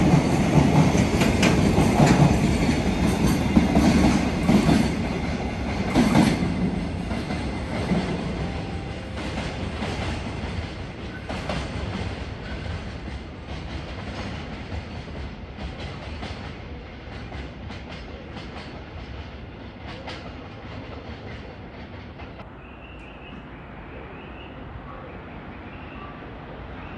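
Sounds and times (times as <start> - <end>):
train wheels clacking: 0.0 - 22.4.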